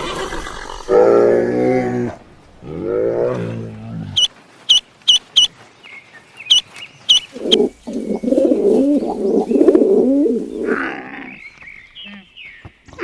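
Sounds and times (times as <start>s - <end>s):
birds chirping: 3.6s - 13.0s
birds wavering calls: 4.2s - 13.0s.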